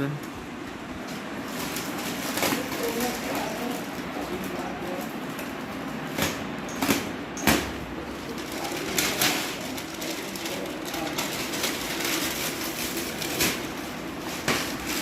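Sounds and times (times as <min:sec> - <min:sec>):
packaging rustling: 0:01.1 - 0:15.0.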